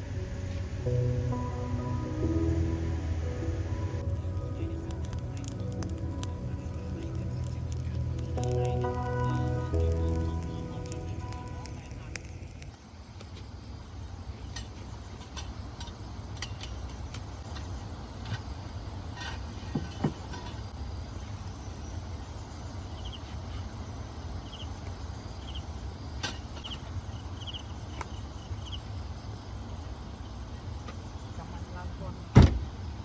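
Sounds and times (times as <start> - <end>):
steady low rumble: 0.0 - 12.7
cricket-like insect chirps: 4.0 - 12.8, 22.8 - 29.5
scattered clicks: 4.0 - 12.8.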